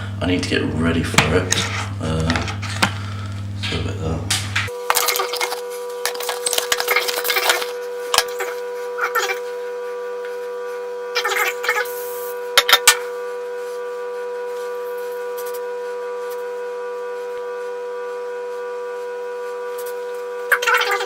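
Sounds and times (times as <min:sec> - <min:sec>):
scratchy handling noise: 0:01.2 - 0:03.8, 0:04.6 - 0:08.4.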